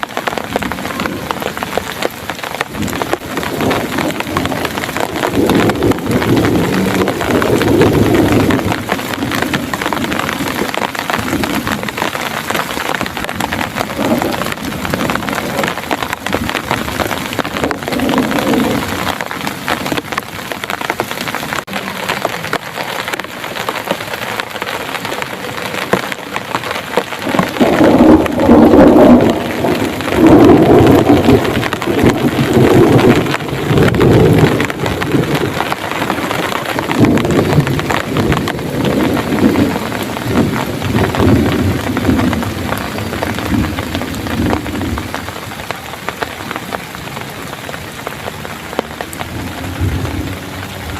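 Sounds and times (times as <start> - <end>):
heavy rain pouring: 0.0 - 50.9
rolling thunder: 2.7 - 20.3, 27.2 - 45.4, 48.8 - 50.9.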